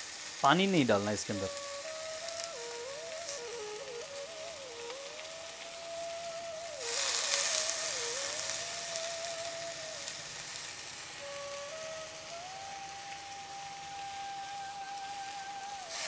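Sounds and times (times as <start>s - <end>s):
potato sizzling in hot oil: 0.0s - 16.0s
soft background tune: 0.5s - 16.0s.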